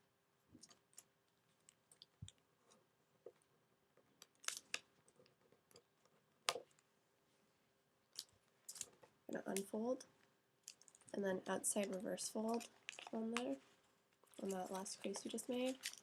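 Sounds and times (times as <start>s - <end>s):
paper crinkling while folded: 10.7s - 16.0s.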